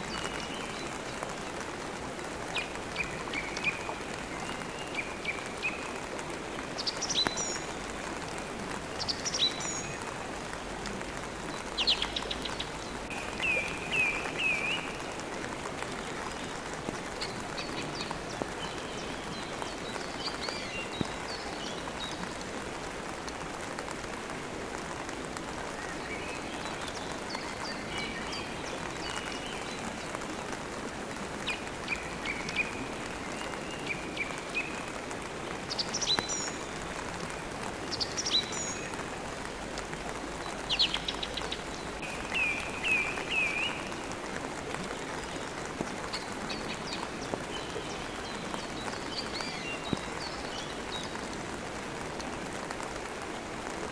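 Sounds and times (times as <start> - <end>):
rain falling: 0.0 - 53.9
birds chirping: 40.6 - 44.1.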